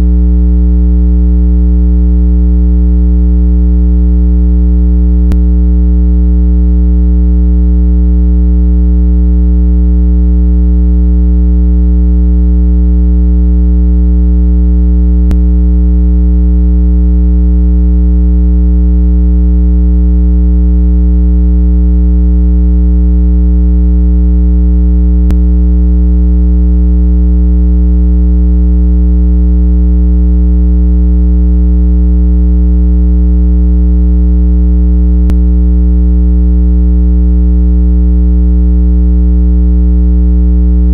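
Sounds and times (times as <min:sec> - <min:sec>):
low electronic tone: 0:00.0 - 0:19.2, 0:22.1 - 0:27.4, 0:35.1 - 0:35.8.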